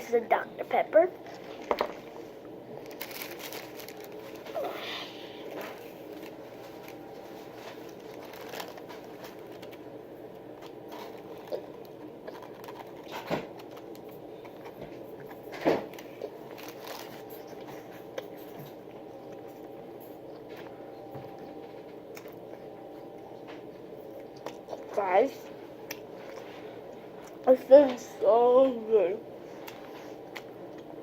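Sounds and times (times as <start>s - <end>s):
room hum: 0.0s - 31.0s
clicks and rustles of eating: 1.1s - 28.1s, 29.5s - 31.0s.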